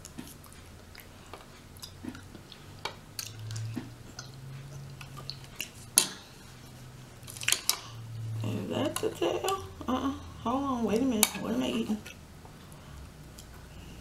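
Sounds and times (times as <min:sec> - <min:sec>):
wet mouth clicks and smacks: 0:00.0 - 0:06.2
person chewing food: 0:00.0 - 0:08.3, 0:12.0 - 0:14.0.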